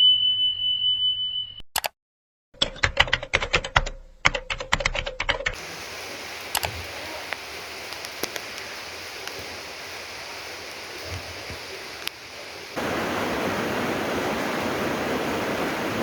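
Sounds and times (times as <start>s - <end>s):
faint drips: 5.6s - 14.5s
rain hissing: 5.6s - 16.0s.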